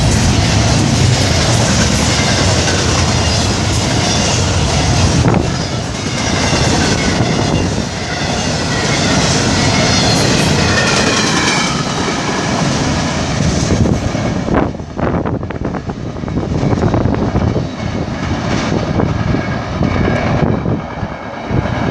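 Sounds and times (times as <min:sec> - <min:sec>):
train wheels rumbling on rail: 0:00.0 - 0:21.9.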